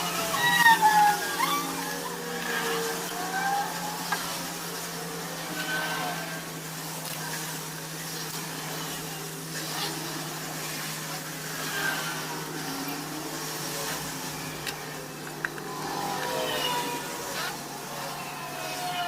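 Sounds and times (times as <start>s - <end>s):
constant background noise: 0.0s - 19.0s
steady mechanical hum: 0.0s - 19.0s.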